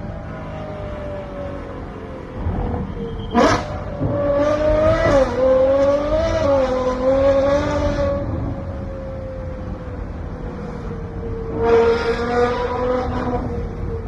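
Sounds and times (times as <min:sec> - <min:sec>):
sports car engine revving: 0:03.3 - 0:08.4.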